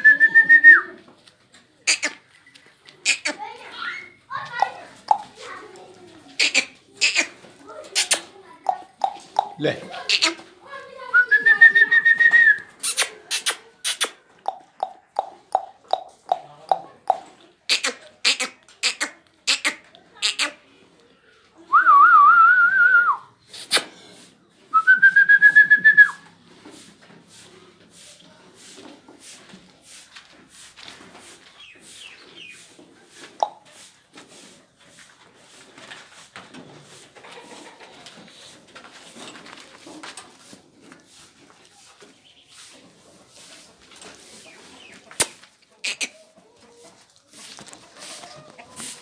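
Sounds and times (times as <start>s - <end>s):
person whistling: 0.0s - 0.9s, 21.8s - 23.8s, 24.8s - 26.2s.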